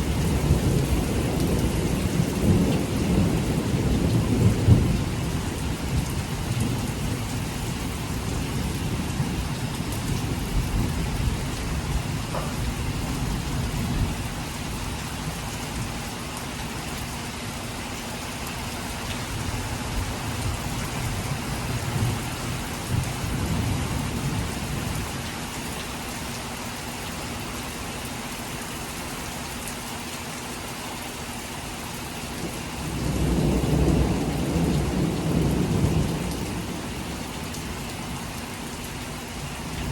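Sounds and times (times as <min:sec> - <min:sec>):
thunder rumbling: 0:00.0 - 0:14.4, 0:32.8 - 0:37.9
heavy rain falling: 0:00.0 - 0:39.9.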